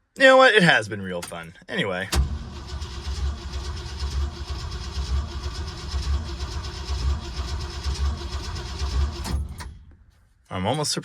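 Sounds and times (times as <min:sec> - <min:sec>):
engine cranking without starting: 0:02.1 - 0:09.9.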